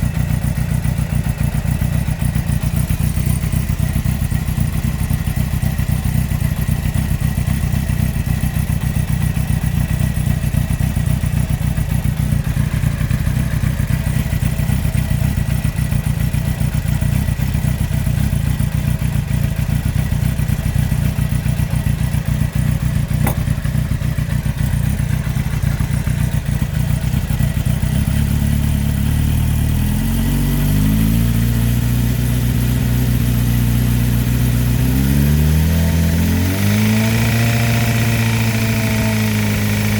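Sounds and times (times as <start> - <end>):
motorcycle engine running: 0.0 - 39.9
engine bearing knock: 23.1 - 23.9.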